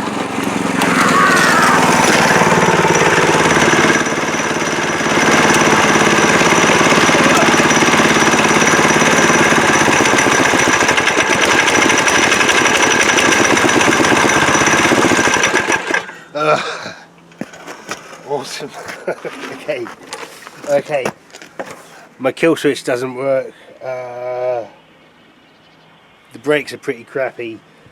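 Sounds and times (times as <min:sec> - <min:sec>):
minibike engine revving: 0:00.0 - 0:16.2.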